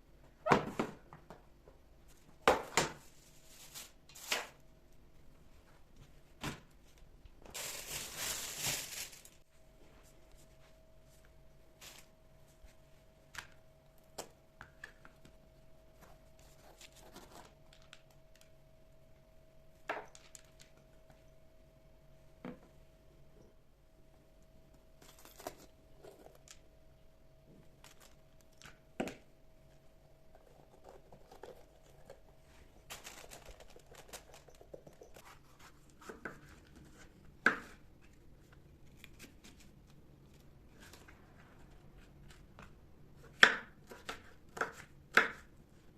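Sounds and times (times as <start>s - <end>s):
faint steady hum: 1.0s - 45.9s
rustling: 3.0s - 4.6s, 6.8s - 12.8s, 30.7s - 37.2s.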